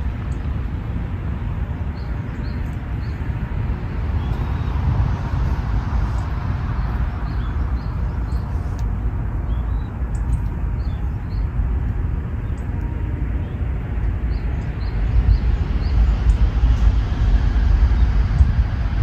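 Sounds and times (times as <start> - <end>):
low uneven rumble: 0.0 - 19.0
small birds chirping: 1.9 - 4.8, 5.4 - 11.6.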